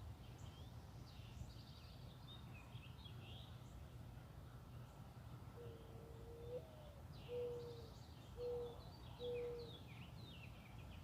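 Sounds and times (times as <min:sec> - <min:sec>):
small birds twittering: 0:00.2 - 0:04.0, 0:04.6 - 0:11.0
dove cooing: 0:05.6 - 0:09.7.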